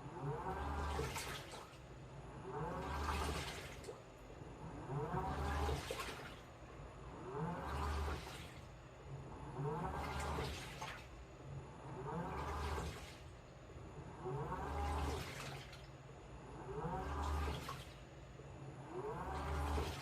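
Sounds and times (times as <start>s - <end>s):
washing machine motor whine: 0.0s - 20.0s
water sloshing: 0.4s - 1.9s, 2.5s - 4.1s, 5.0s - 6.6s, 9.9s - 11.2s, 12.0s - 13.4s, 14.5s - 16.0s, 17.1s - 18.1s.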